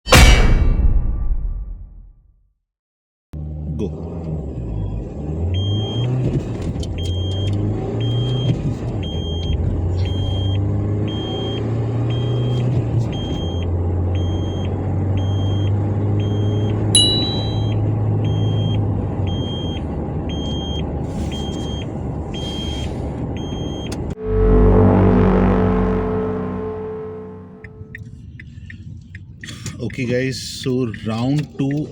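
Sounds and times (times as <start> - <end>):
car engine accelerating: 3.4 - 28.5
short electronic beeps: 7.0 - 22.8.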